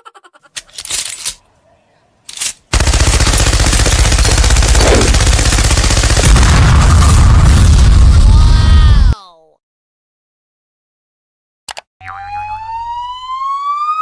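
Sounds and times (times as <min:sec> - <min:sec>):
rapid automatic gunfire: 0:02.7 - 0:07.1
low explosion rumble: 0:06.2 - 0:09.0.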